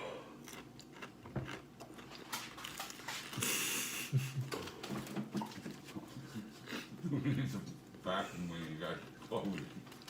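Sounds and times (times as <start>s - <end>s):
person eating with wet smacks: 0.4s - 7.0s.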